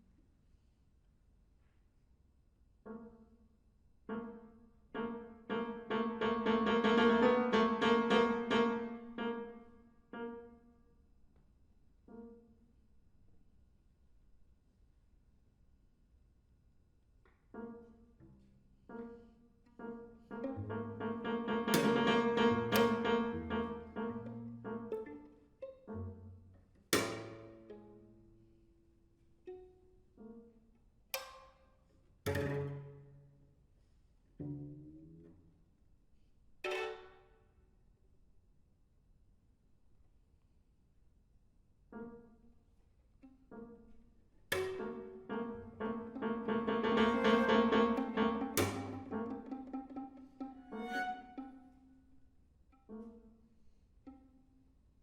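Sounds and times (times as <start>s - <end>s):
violin cello and piano trio: 4.1s - 10.5s, 17.6s - 28.4s, 36.7s - 37.1s, 44.5s - 52.2s
piano repeated chord: 20.6s - 24.8s, 44.8s - 49.5s.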